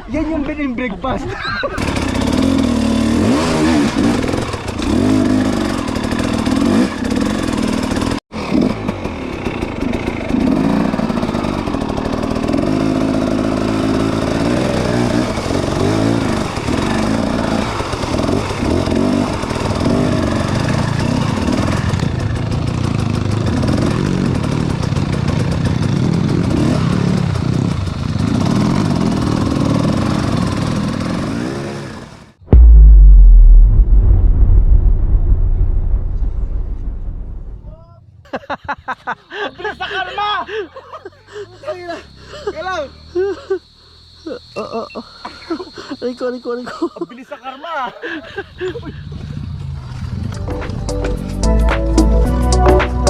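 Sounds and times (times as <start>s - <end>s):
motorcycle engine revving: 1.8s - 35.4s.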